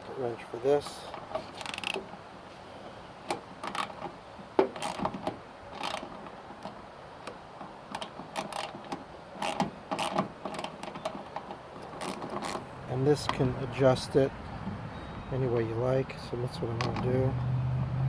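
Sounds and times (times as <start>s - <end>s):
ratchet wrench clicking: 5.8s - 6.0s.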